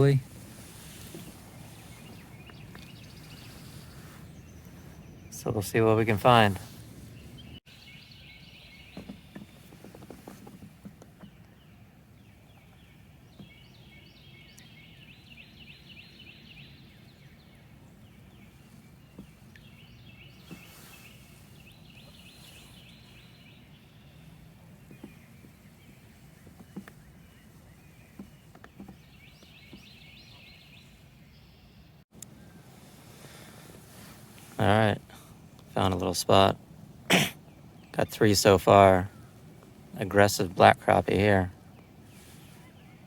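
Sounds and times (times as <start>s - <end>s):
bird calling with rattling notes: 7.2s - 32.0s.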